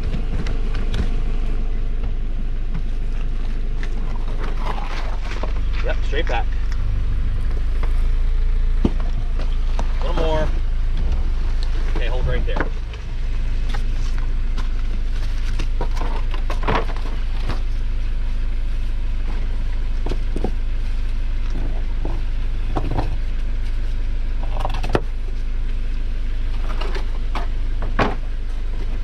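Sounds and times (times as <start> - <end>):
knocks and clatters: 0.0 - 5.9
off-road vehicle idling: 0.0 - 29.0.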